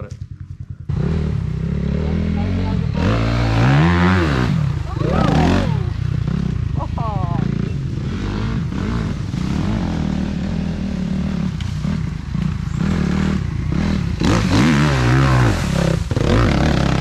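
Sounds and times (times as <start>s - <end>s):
small engine revving: 0.6s - 17.0s.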